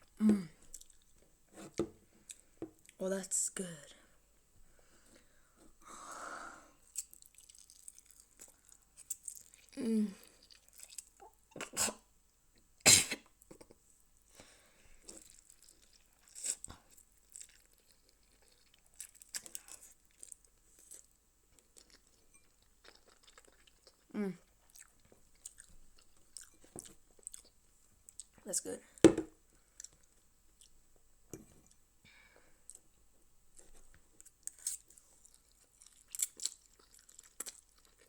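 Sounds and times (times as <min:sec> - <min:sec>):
chewing noodles: 0:06.9 - 0:12.0, 0:15.0 - 0:28.4, 0:33.6 - 0:38.0
wet mouth sounds: 0:10.4 - 0:12.0.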